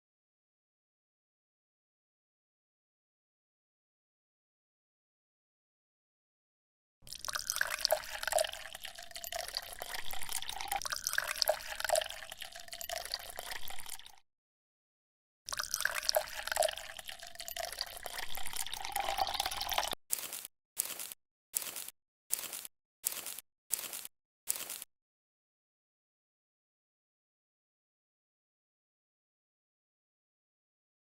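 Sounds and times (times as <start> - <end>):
liquid pouring and splashing: 7.0 - 14.2, 15.5 - 24.8
small drips: 7.1 - 14.2, 15.5 - 20.0.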